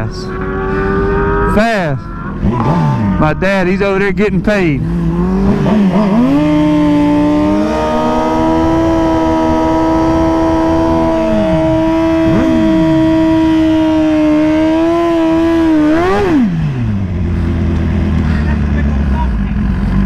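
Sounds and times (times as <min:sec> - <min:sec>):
background engines falling in pitch: 0:00.0 - 0:20.0
motorcycle engine at high rev: 0:00.0 - 0:20.0.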